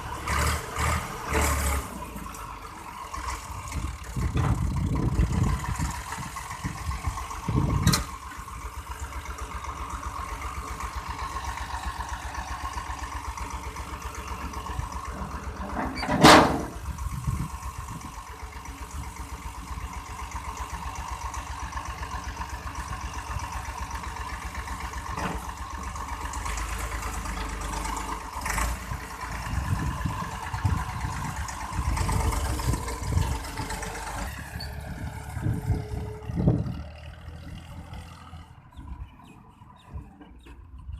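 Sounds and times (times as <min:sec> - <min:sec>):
tractor engine pulsing: 0:00.0 - 0:40.9
heavy low rumbling: 0:03.4 - 0:08.0, 0:29.4 - 0:39.3.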